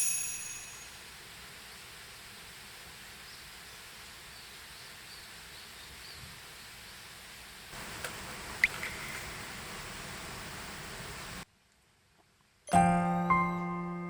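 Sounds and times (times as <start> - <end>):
faint high chirps: 0.0 - 1.0, 7.8 - 11.4
high ringing tone: 0.0 - 1.0
faint steady hiss: 0.0 - 14.0.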